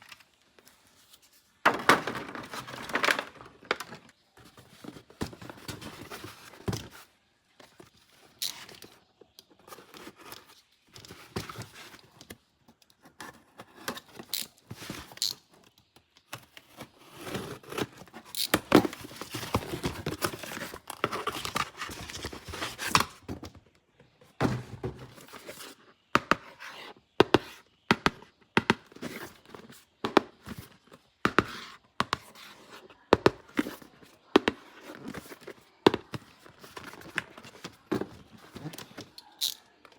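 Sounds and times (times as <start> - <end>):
packaging rustling and tearing: 16.6 - 23.3.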